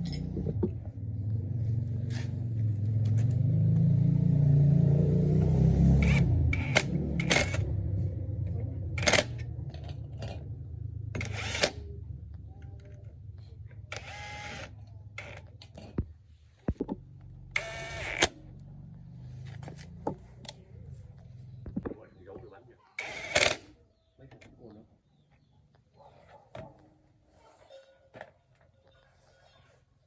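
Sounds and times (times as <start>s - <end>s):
small gasoline engine hum: 0.0s - 15.8s
sharp metallic clicks: 5.4s - 7.7s, 9.0s - 9.5s, 11.2s - 11.9s, 13.9s - 15.7s, 17.5s - 18.4s, 23.0s - 23.7s.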